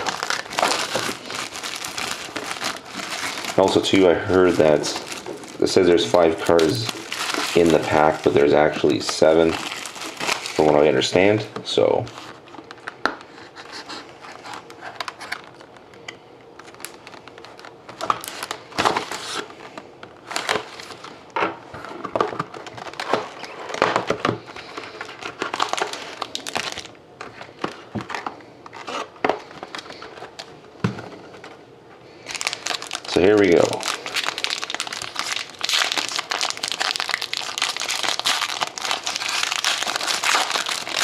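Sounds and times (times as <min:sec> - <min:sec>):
plastic wrapping crinkling and tearing: 0:00.0 - 0:13.0, 0:13.6 - 0:16.0, 0:16.6 - 0:30.6, 0:32.2 - 0:41.0.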